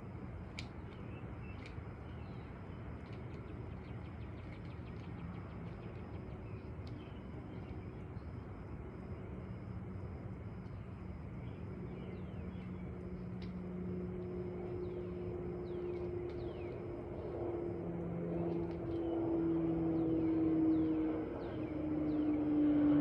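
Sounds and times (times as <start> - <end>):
engine drone: 0.0 - 23.0.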